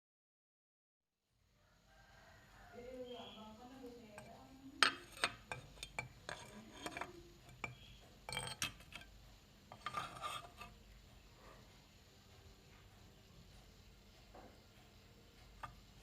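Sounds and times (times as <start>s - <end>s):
tile pieces scraping: 4.8s - 7.6s, 9.7s - 10.7s
ceramic tile pieces clinking: 4.8s - 9.1s.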